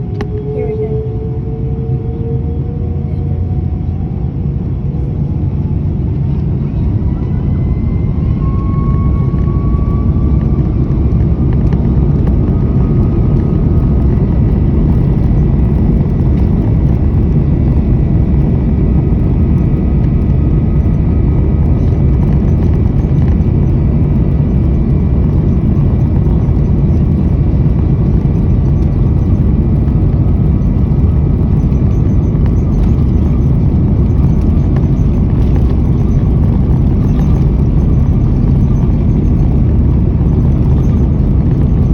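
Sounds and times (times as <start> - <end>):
jet engines at takeoff: 0.0 - 41.9.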